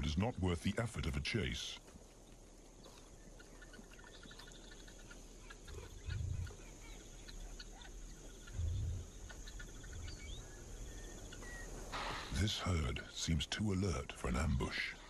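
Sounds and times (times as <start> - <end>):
birds chirping and trilling: 0.0 - 15.0
high insect drone: 5.2 - 13.4
low thuds: 8.4 - 10.7.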